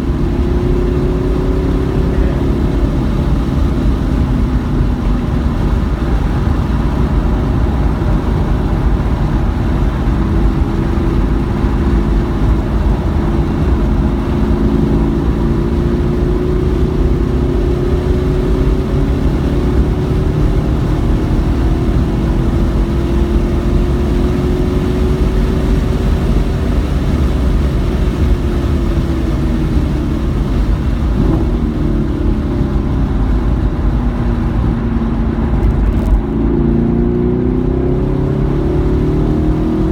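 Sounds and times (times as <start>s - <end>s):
car engine revving: 0.0s - 39.9s
low rumble: 29.0s - 38.2s.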